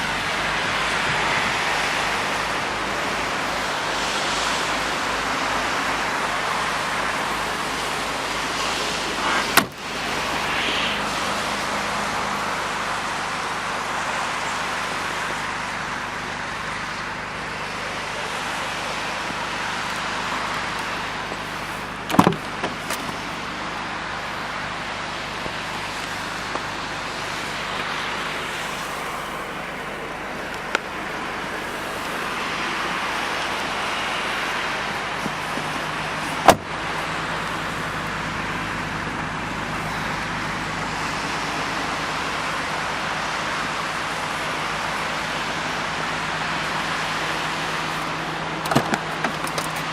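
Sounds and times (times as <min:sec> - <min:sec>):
road traffic noise: 0:00.0 - 0:49.9.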